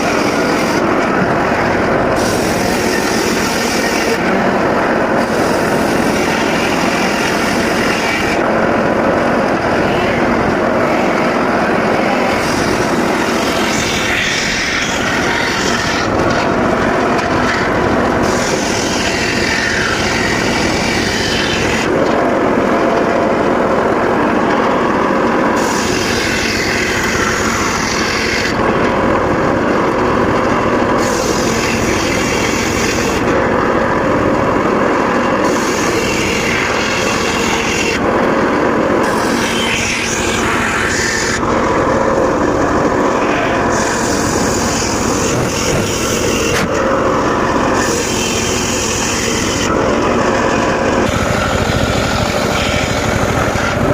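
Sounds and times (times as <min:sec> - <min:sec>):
hissing saw cutting wood: 0:00.0 - 0:22.3, 0:24.4 - 0:53.9
circular saw running: 0:00.0 - 0:53.9.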